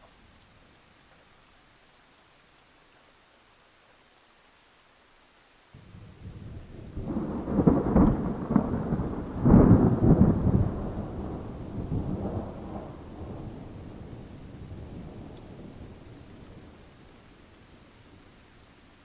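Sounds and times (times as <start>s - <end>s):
thunder rumbling: 5.8s - 17.2s
thunder crashes: 6.8s - 13.6s.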